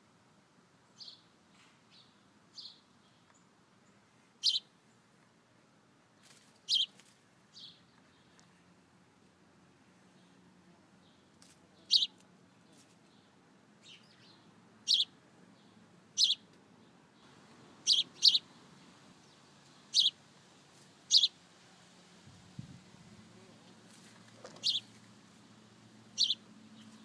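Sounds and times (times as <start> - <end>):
songbird chirping: 0.8 - 5.4, 6.2 - 27.0.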